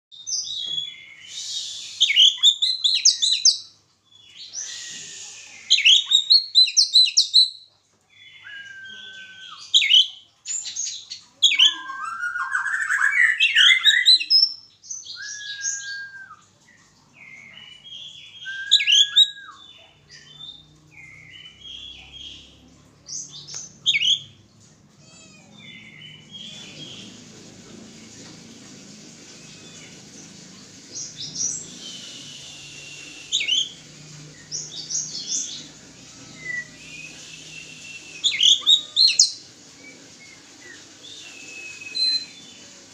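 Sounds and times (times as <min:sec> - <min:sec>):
bird singing varied phrases: 0:00.2 - 0:24.4, 0:31.0 - 0:42.7
short level bird whistles: 0:31.8 - 0:33.7.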